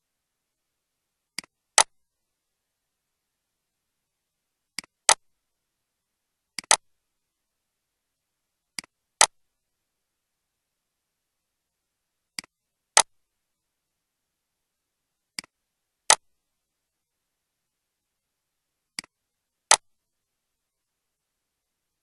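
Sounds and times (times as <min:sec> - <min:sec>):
sharp clicks: 0:06.6 - 0:06.8.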